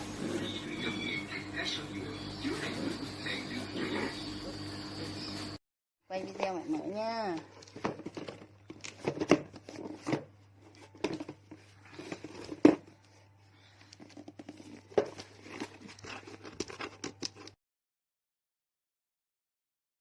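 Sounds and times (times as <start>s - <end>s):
crinkling and tapping: 6.1s - 17.6s.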